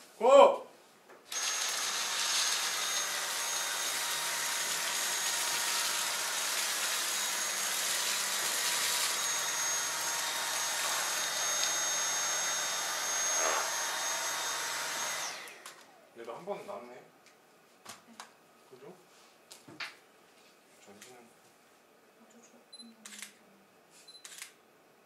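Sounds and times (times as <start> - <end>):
cordless vacuum running: 1.3 - 16.1.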